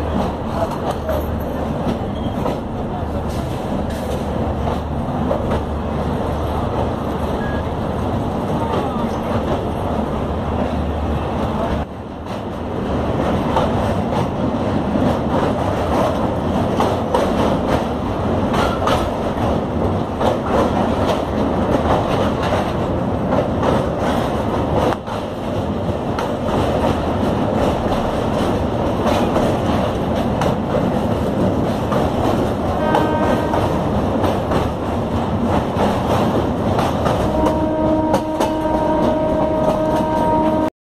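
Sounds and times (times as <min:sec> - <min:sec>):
train wheels rumbling on rail: 0:00.0 - 0:40.7
wheels clicking over rail joints: 0:11.6 - 0:40.5.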